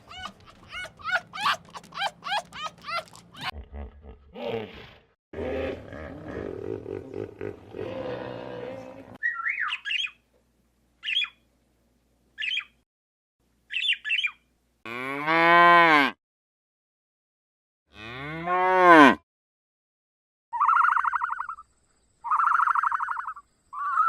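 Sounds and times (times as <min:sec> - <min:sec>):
rough growling animal call: 0:00.0 - 0:09.2
high squawking chirps: 0:09.2 - 0:10.2, 0:20.6 - 0:24.0.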